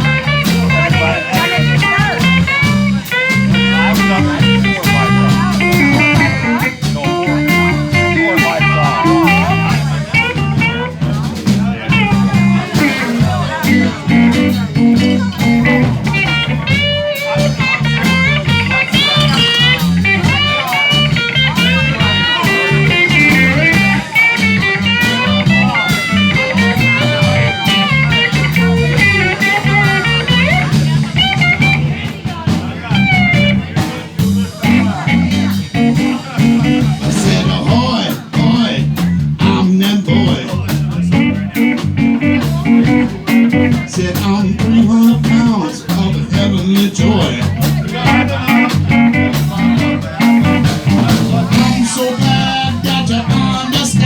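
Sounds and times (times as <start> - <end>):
lead guitar solo: 0.0 - 10.9, 11.9 - 31.8, 41.2 - 43.9
drums: 0.0 - 54.0
walking bass line: 0.0 - 54.0.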